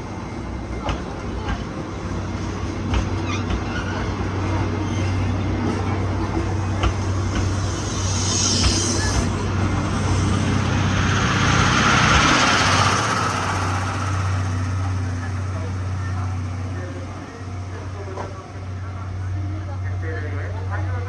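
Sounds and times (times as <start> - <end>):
steam train low hum: 0.0 - 21.0
steam hiss: 6.8 - 16.6.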